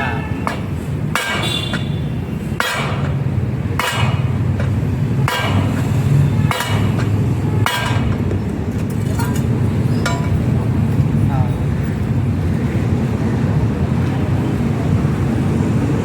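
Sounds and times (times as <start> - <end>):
hammer striking metal wheel: 0.4 - 8.4, 10.0 - 10.5.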